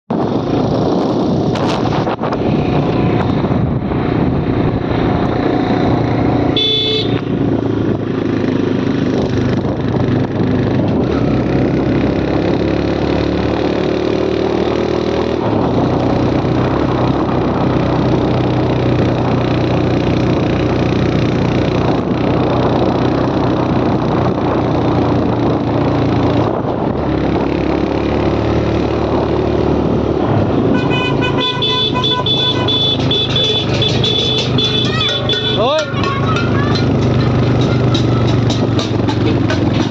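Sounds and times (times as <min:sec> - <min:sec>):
motorcycle engine running: 0:00.1 - 0:14.8, 0:29.8 - 0:39.9
vehicle horn: 0:06.5 - 0:07.3, 0:30.7 - 0:36.4.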